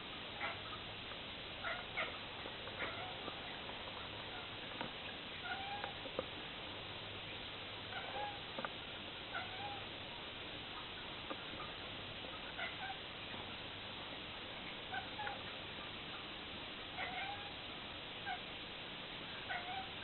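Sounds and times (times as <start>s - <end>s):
cat chirping meows: 5.4s - 6.0s, 7.9s - 8.5s, 9.3s - 9.9s, 17.0s - 17.6s, 19.5s - 20.0s.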